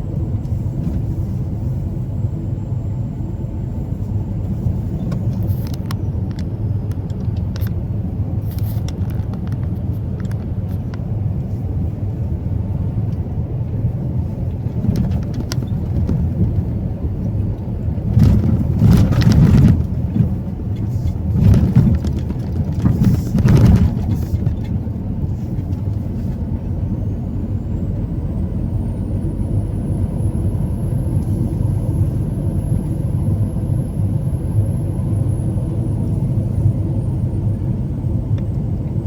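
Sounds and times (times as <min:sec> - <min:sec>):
truck engine and road noise: 0:00.0 - 0:39.0
clicks and rattles: 0:18.1 - 0:24.8.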